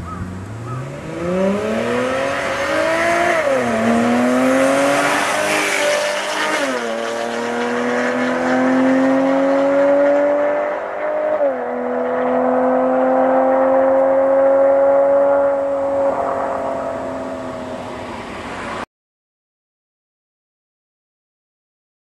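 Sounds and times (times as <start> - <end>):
car engine accelerating hard: 0.0 - 18.8.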